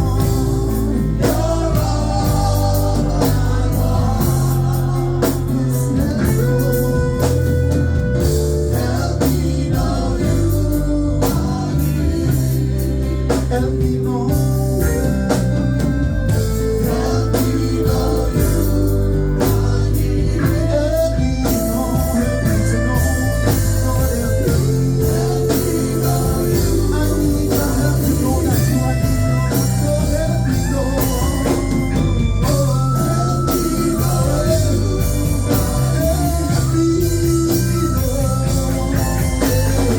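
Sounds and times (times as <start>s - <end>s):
gospel band playing: 0.0s - 39.9s
person singing: 32.4s - 39.9s.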